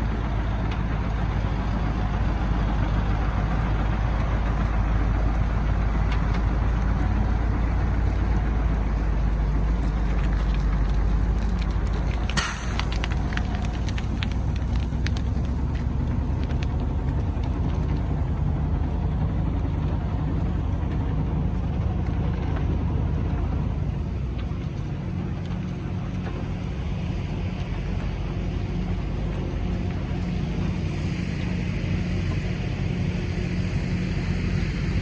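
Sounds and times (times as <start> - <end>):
excavator diesel engine running: 0.0 - 35.0
rock clattering: 12.1 - 15.5
rock banging on steel bucket: 12.4 - 13.2.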